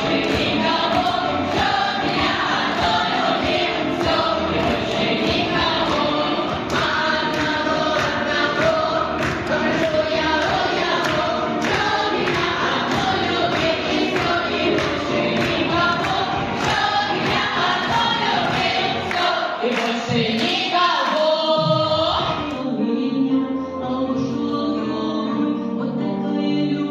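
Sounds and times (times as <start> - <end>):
backing track with steady beat: 0.0 - 19.3
group of voices singing: 0.0 - 26.9.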